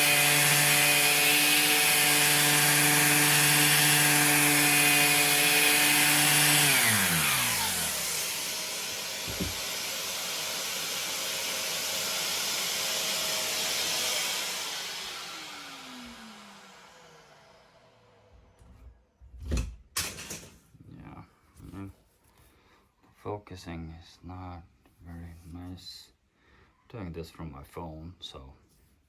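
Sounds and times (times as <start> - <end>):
orbital sander running: 0.0 - 18.3
sander spinning down: 0.0 - 18.6
short knock: 9.3 - 9.6.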